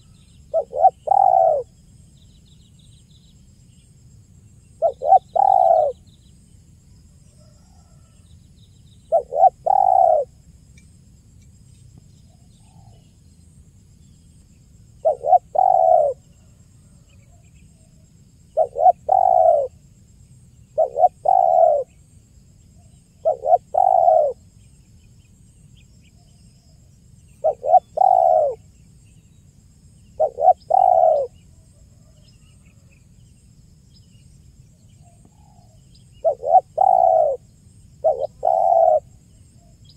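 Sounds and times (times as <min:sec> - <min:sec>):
dove cooing: 0:00.0 - 0:01.8, 0:04.8 - 0:06.0, 0:09.1 - 0:10.4, 0:15.0 - 0:16.2, 0:18.6 - 0:19.8, 0:20.8 - 0:21.9, 0:23.2 - 0:24.4, 0:27.4 - 0:28.7, 0:30.2 - 0:31.4, 0:35.4 - 0:39.2.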